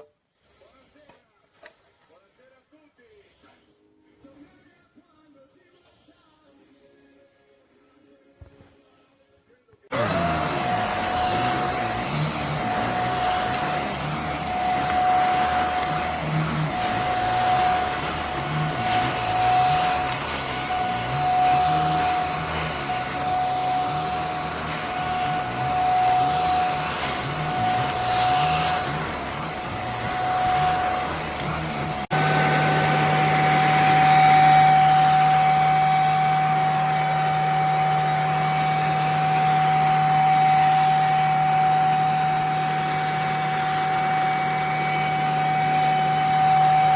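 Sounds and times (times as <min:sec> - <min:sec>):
handheld vacuum cleaner running: 0:09.9 - 0:46.9.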